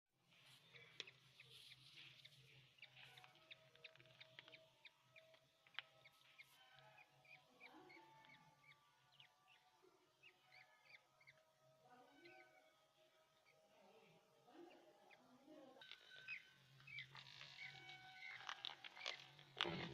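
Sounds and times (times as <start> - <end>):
budgerigars chattering: 0.7 - 11.4, 15.9 - 19.4.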